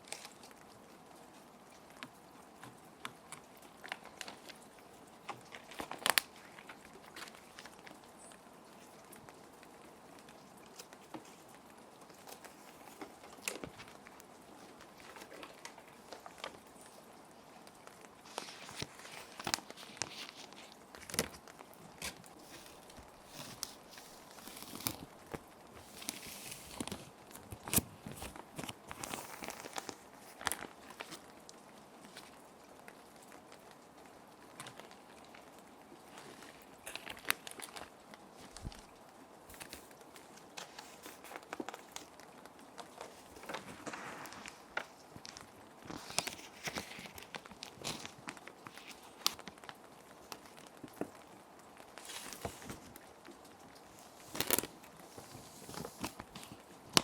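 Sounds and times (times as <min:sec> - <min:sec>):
plastic sheets crinkling: 0:00.0 - 0:57.0
steady rain: 0:00.0 - 0:57.0.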